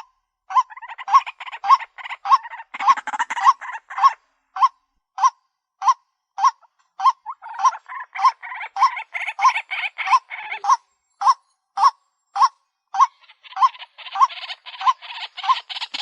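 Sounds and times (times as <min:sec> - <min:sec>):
waterhen calling harsh notes: 0:05.2 - 0:16.0.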